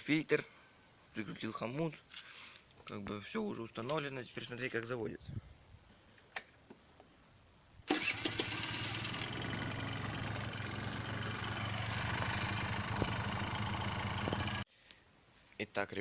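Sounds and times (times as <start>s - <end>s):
scooter engine running: 8.0s - 14.6s.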